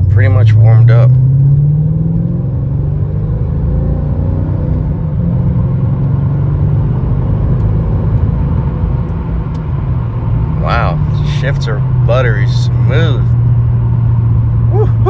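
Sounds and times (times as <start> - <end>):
road noise: 0.0 - 15.0
car engine running: 7.9 - 15.0.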